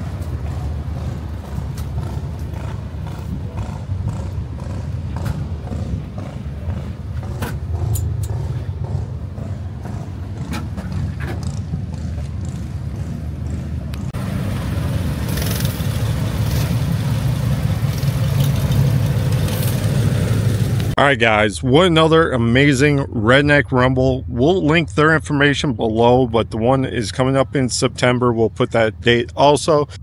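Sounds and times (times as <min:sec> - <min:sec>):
vehicle engine and road rumble: 0:00.0 - 0:30.0.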